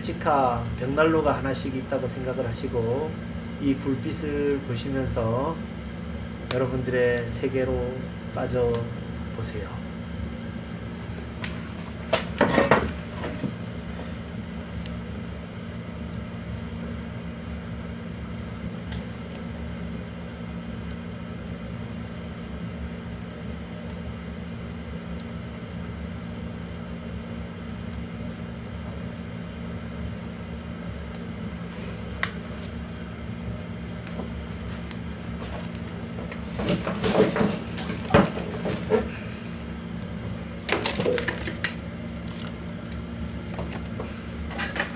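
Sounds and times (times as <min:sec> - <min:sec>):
firewood crackling in stove: 0:00.0 - 0:44.9.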